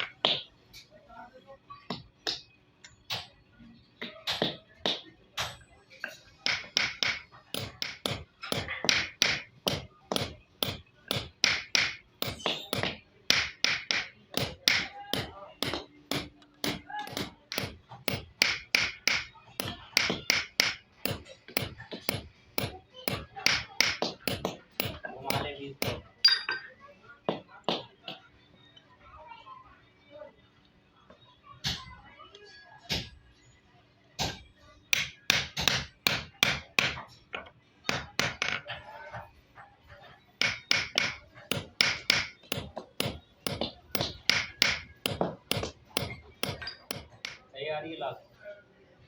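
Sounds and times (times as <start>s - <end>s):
hammer striking steel: 6.4s - 26.7s, 40.4s - 47.4s.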